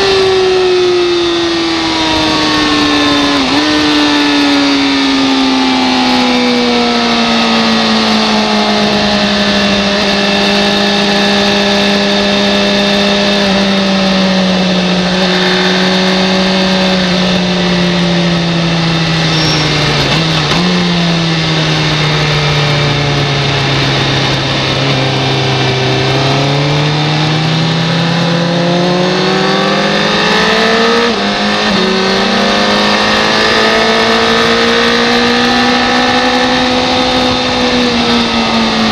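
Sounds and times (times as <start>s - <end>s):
racing motorcycle engine: 0.0s - 38.9s
wind rush: 1.2s - 29.3s, 30.9s - 38.9s.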